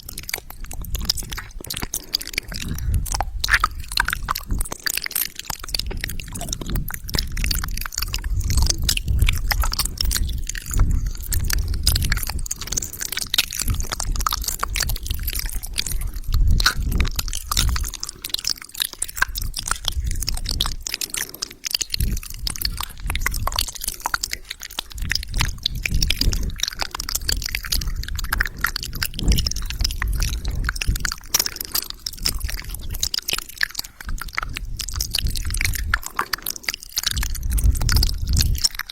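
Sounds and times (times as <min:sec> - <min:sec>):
wet mouth sounds: 0:00.0 - 0:38.9.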